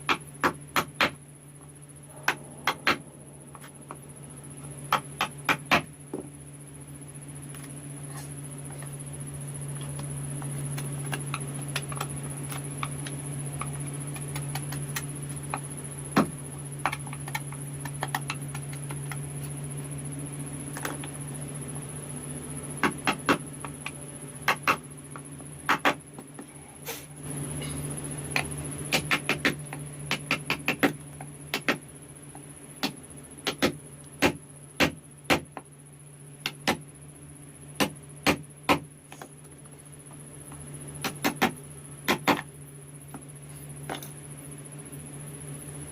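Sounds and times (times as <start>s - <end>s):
low hum: 1.2s - 22.8s.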